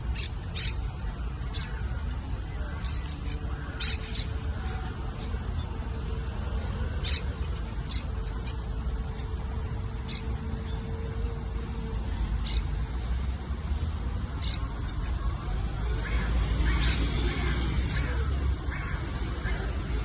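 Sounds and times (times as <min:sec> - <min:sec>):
parrots chirping and squawking: 0:00.0 - 0:04.9, 0:06.8 - 0:08.6, 0:09.9 - 0:10.5, 0:12.4 - 0:12.8, 0:14.4 - 0:15.1, 0:16.0 - 0:20.0.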